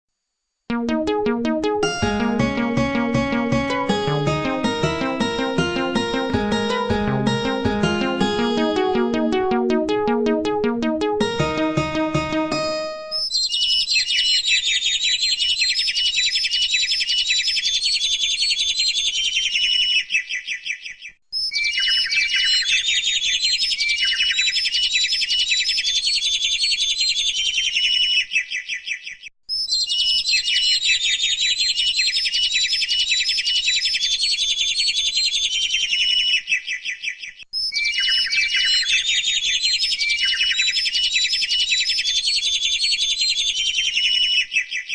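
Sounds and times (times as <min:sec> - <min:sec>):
small birds chirping and twittering: 0:13.1 - 0:44.9.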